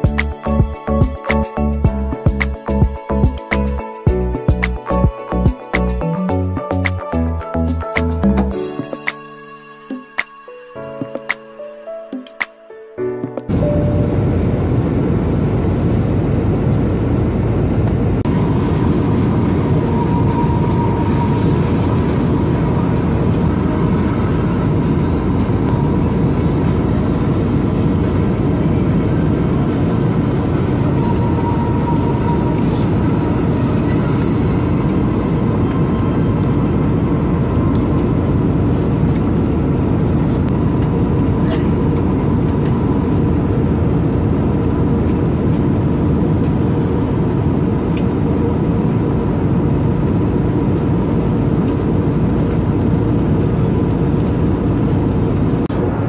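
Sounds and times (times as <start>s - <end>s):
airliner cabin engine roar: 13.4s - 56.0s.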